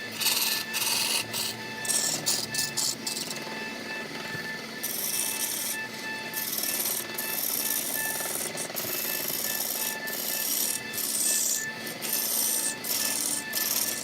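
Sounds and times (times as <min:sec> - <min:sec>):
tool rasping into wood: 0:00.0 - 0:03.6, 0:04.2 - 0:14.0.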